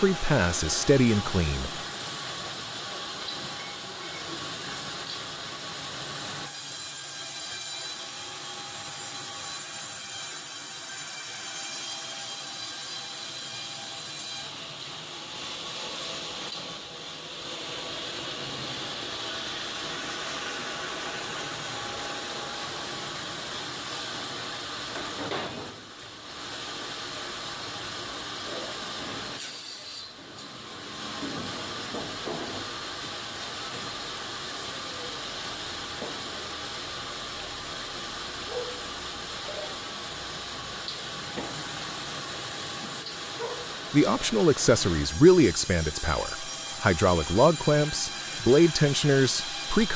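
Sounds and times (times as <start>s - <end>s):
sawmill cutting: 0.0s - 2.0s, 6.1s - 14.8s, 43.6s - 49.9s.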